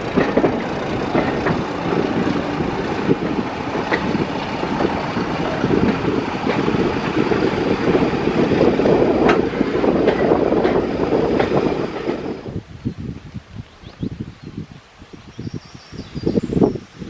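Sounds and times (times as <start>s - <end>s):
wheels knocking over rail joints: 0.0s - 12.3s
train running rumble: 0.0s - 12.6s.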